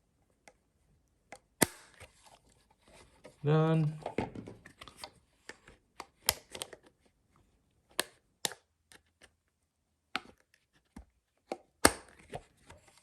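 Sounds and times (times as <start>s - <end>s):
plastic parts clicking and snapping: 4.0s - 7.0s.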